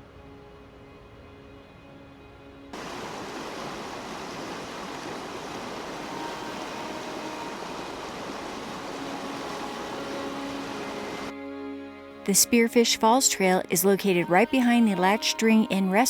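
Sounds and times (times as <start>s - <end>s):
background music: 0.0s - 2.8s, 5.6s - 16.0s
waterfall rushing: 2.8s - 11.3s.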